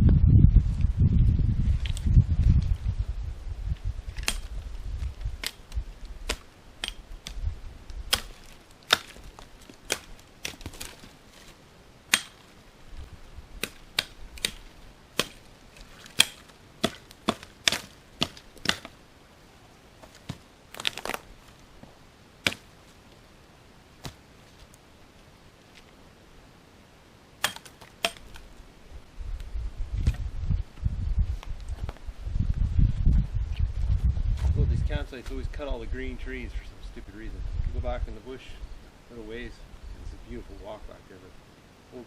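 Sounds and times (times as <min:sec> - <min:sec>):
low rumble: 0:00.0 - 0:06.3, 0:28.9 - 0:38.8
twigs snapping: 0:04.1 - 0:12.6, 0:13.6 - 0:19.0, 0:20.0 - 0:21.6, 0:22.4 - 0:23.2, 0:24.0 - 0:24.8.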